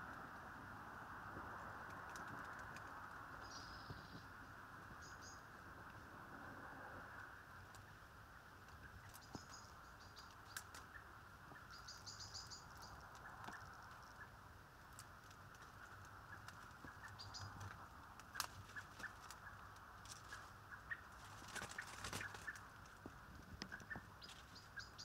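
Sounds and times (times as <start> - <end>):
steady outdoor hiss: 0.0 - 25.0
high bird chirps: 5.0 - 5.5, 8.8 - 14.4, 23.7 - 25.0.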